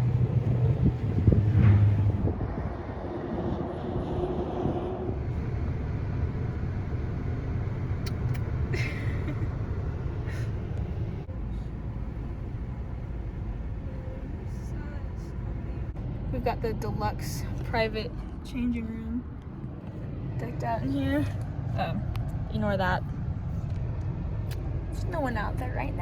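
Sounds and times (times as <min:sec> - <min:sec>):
car engine rumble: 0:00.0 - 0:26.0.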